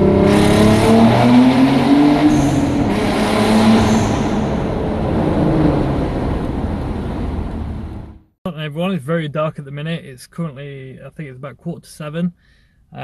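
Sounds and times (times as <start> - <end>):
car engine revving: 0.0 - 8.2.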